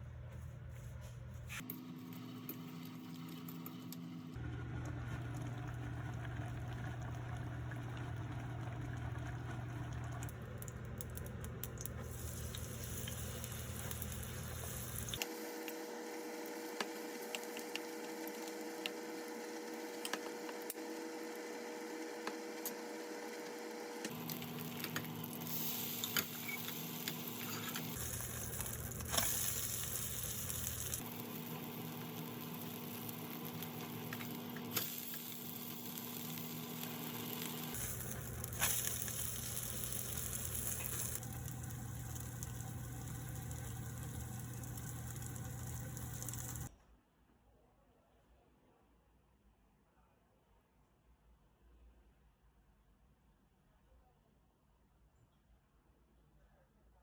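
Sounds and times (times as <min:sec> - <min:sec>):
food sizzling in a pan: 0:12.0 - 0:15.2, 0:24.1 - 0:46.7.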